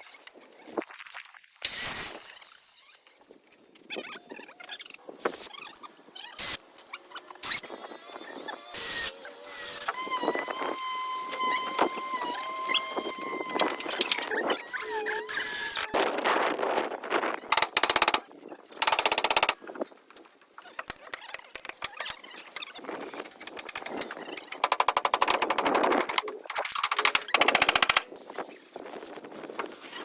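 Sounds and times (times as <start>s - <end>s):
power tool rattling clicks: 17.5s - 18.2s, 18.8s - 19.6s, 20.8s - 22.7s, 23.3s - 28.1s
scattered clicks and knocks: 17.5s - 18.2s, 18.8s - 19.6s, 20.2s - 28.1s.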